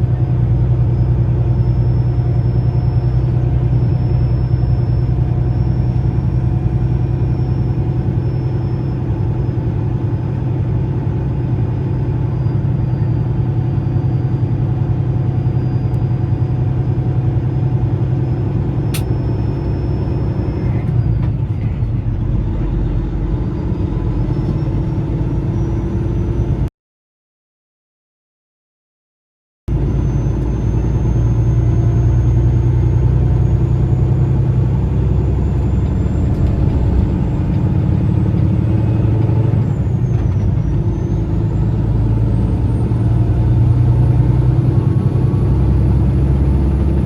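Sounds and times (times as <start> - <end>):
truck engine and road drone: 0.0 - 26.7, 29.7 - 47.0
sharp click: 18.9 - 19.1.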